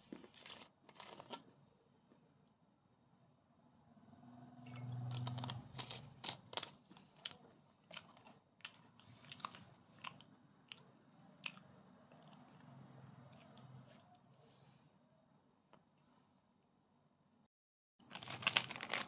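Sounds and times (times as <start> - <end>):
person chewing crunchy food: 0.0 - 1.5, 4.7 - 12.7.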